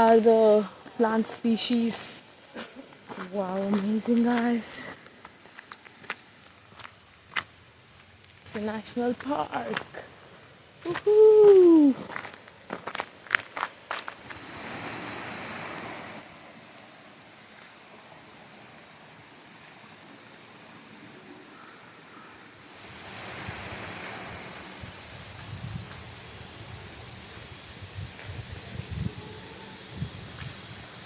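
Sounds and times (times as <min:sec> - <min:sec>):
soft hiss: 0:00.0 - 0:31.0
high-pitched insect whine: 0:22.6 - 0:31.0.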